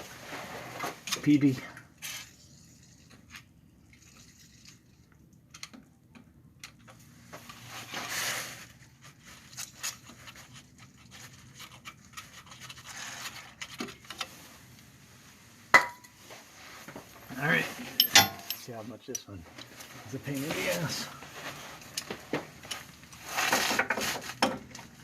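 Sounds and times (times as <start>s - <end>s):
tools clicking and tapping: 18.0s - 19.3s.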